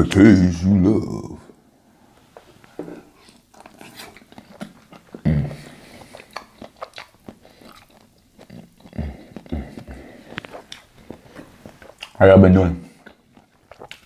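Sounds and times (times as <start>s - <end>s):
close-miked chewing: 3.1s - 14.0s
wet mouth clicks: 3.2s - 12.2s, 13.0s - 14.0s.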